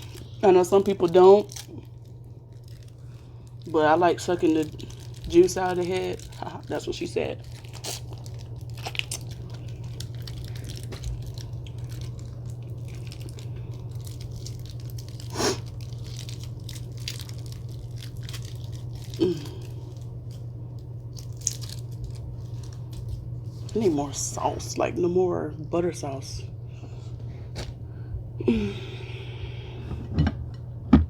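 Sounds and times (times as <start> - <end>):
steady low hum: 0.0 - 31.0
wet clicks and crunches: 4.6 - 23.2
person eating shrimp: 7.5 - 20.2.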